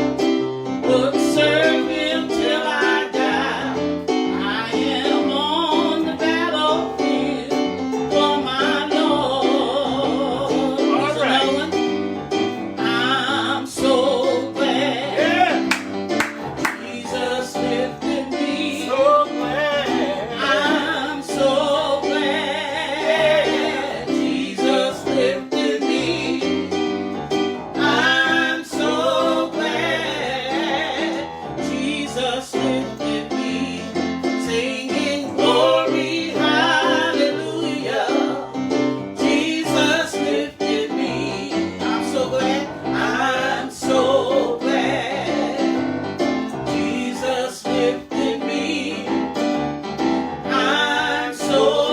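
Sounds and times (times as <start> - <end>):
piano accompaniment: 0.0 - 51.9
person singing with vibrato: 0.8 - 12.0, 16.8 - 26.7.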